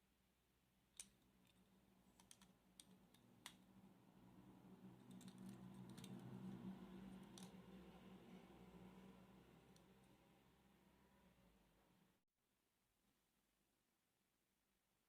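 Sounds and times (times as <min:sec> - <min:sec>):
model cars clicking and tapping: 0:01.0 - 0:03.6, 0:05.0 - 0:06.4, 0:07.2 - 0:07.6.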